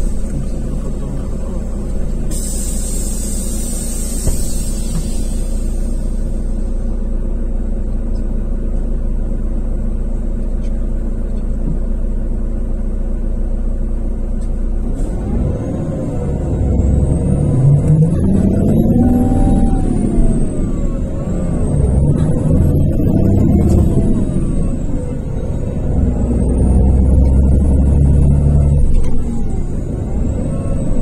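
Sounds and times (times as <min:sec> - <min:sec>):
bus diesel engine running: 0:00.0 - 0:31.0
air hiss: 0:02.3 - 0:06.7.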